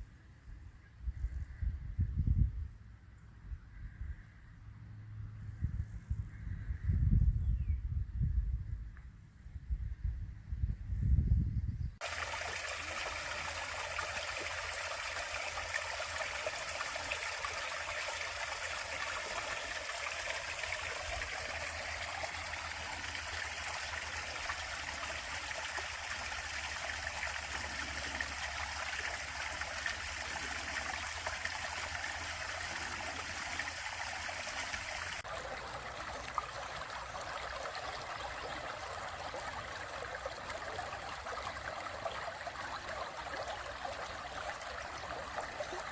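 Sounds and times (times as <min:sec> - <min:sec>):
stream rushing: 0:12.0 - 0:45.9.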